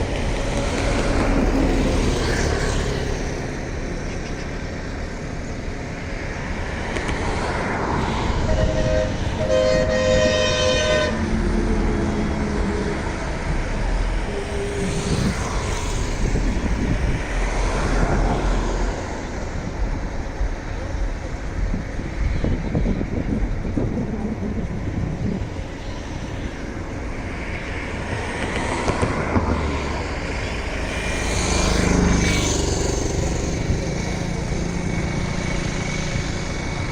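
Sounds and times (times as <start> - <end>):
jet engine roar on takeoff: 0.0 - 36.9
brief horn-like tone: 8.5 - 11.2.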